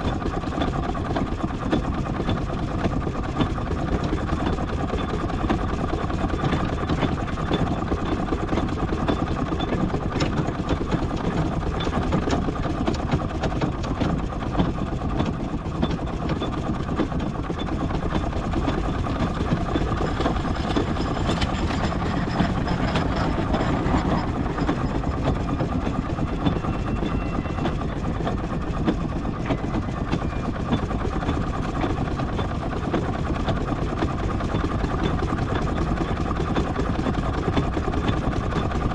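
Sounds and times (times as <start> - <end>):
steam traction engine rumbling: 17.4 - 32.1.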